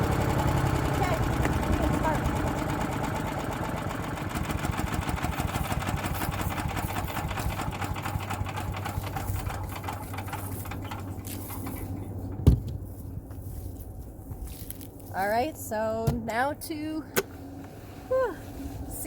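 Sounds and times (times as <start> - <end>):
wood chipper engine running: 0.0 - 13.6.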